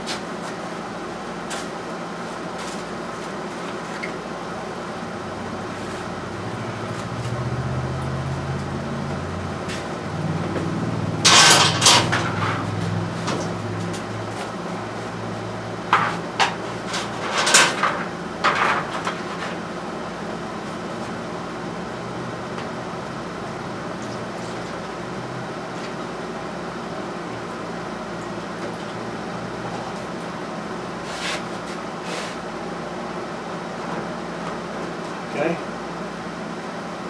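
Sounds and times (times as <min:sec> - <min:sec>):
steady background hum: 0:00.0 - 0:37.0
objects knocking and clattering: 0:10.6 - 0:14.2, 0:15.9 - 0:19.6.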